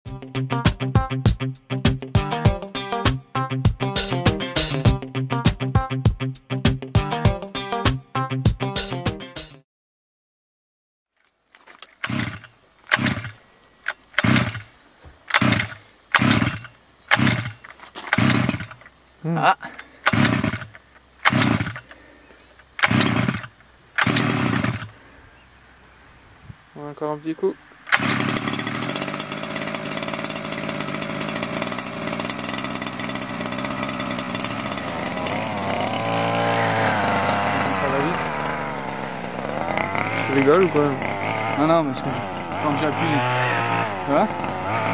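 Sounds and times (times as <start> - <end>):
music: 0.1 - 9.6
small two-stroke engine revving: 12.0 - 14.7, 15.3 - 18.9, 19.8 - 22.2, 22.8 - 25.0, 27.9 - 44.9.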